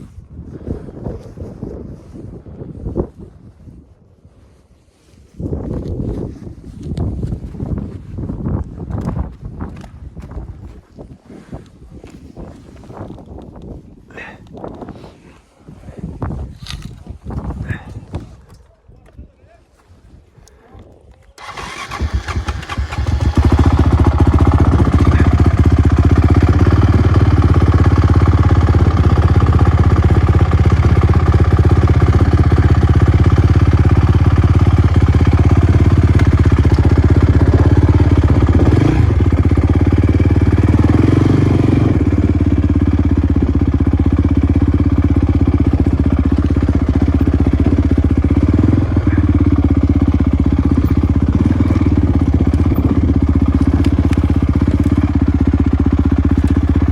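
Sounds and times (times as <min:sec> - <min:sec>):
motocross bike engine running: 0:21.4 - 0:56.9.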